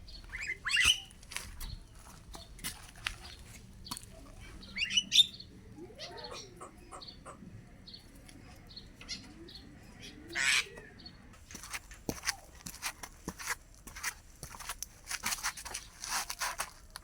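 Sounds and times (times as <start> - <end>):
starling chirping and clicking: 0.1 - 11.2.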